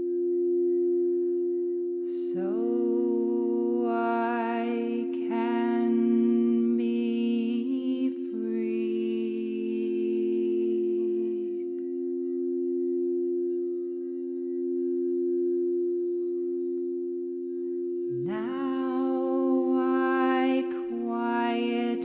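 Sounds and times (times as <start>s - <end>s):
singing bowls ringing: 0.0s - 22.0s
woman humming wordless tones: 2.0s - 12.4s, 18.1s - 22.0s.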